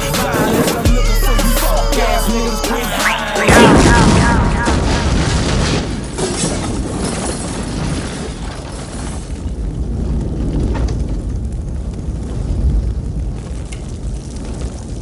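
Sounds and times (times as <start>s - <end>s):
loud low rumbling: 0.0s - 5.7s.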